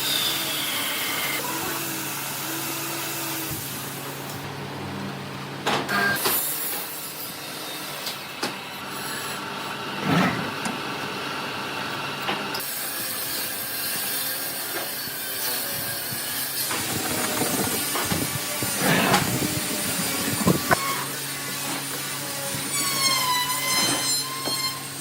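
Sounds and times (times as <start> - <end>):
tools scraping wooden boards: 10.0 - 10.8, 16.6 - 21.0.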